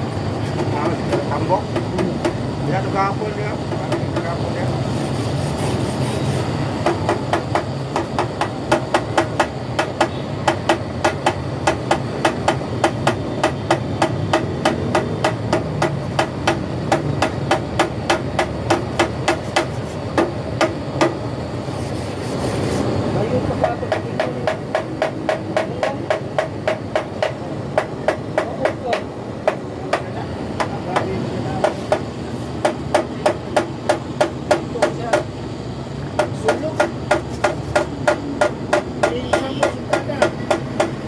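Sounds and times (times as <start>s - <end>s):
hammer blows on metal: 36.1s - 41.0s.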